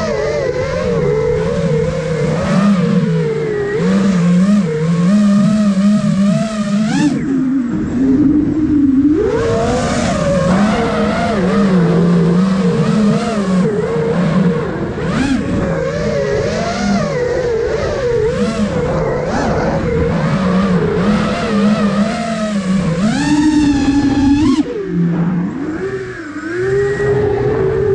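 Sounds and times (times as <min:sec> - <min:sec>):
drone propellers buzzing whine: 0:00.0 - 0:27.9
wind noise: 0:00.0 - 0:27.9.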